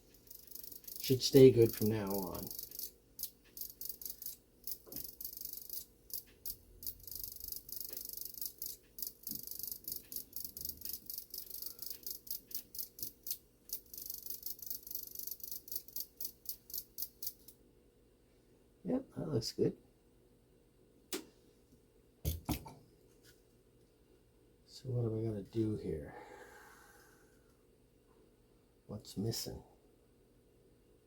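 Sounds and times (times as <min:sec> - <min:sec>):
clock movement clicking: 0:00.0 - 0:17.5.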